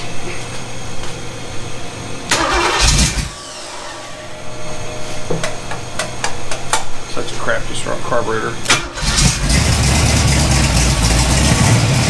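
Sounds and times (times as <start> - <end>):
car engine running: 8.9 - 12.0.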